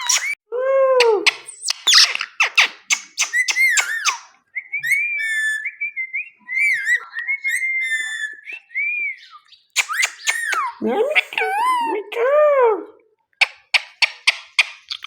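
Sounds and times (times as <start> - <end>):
parrot chattering and whistling: 0.0 - 0.4, 1.0 - 5.7, 9.8 - 11.6.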